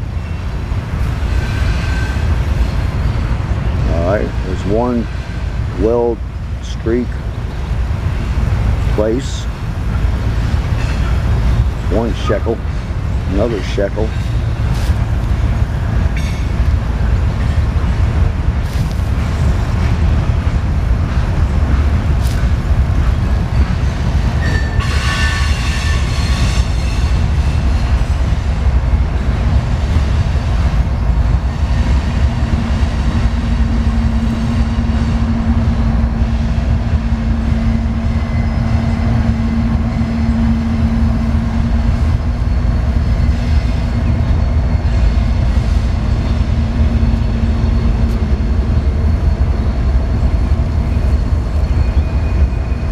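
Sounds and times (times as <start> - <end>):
welding torch flame rushing: 18.6 - 19.4
steady low hum: 26.6 - 52.9.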